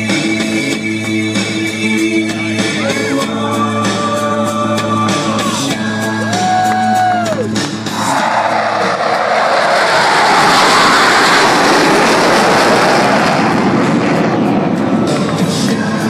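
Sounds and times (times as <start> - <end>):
jets passing with afterburner roar: 7.7 - 16.0.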